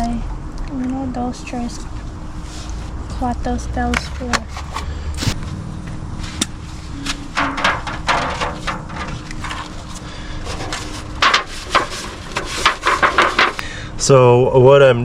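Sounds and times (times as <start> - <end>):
utensil scraping: 4.2 - 5.4, 6.2 - 13.7
utensils knocking and clicking: 7.1 - 13.7.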